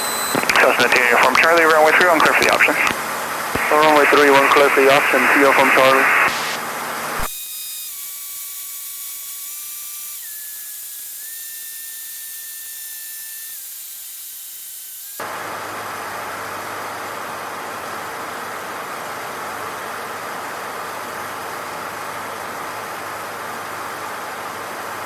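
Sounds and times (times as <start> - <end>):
airplane engine and cabin noise: 0.0 - 7.2
intercom hiss with whine tones: 0.0 - 7.3.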